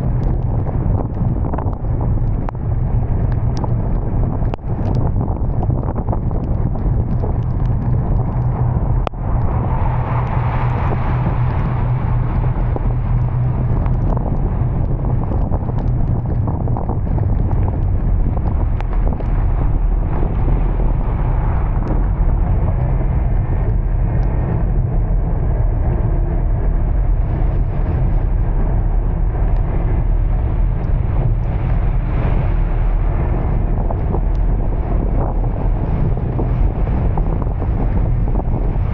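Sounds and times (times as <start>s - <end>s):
vehicle driving low rumble: 0.0s - 38.9s
small ticks: 3.2s - 9.5s, 13.1s - 19.7s.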